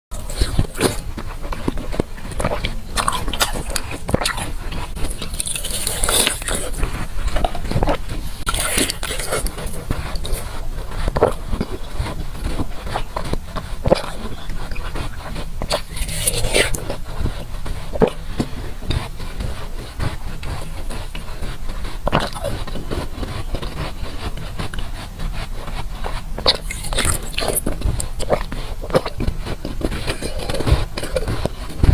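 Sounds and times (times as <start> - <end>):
chewing ice crunches: 0.2 - 31.9.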